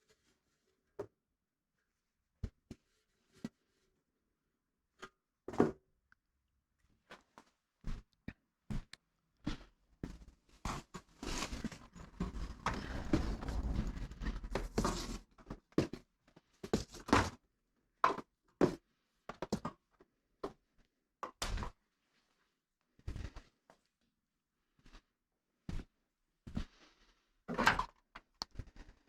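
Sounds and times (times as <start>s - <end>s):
scraping and rustling: 10.7s - 15.6s.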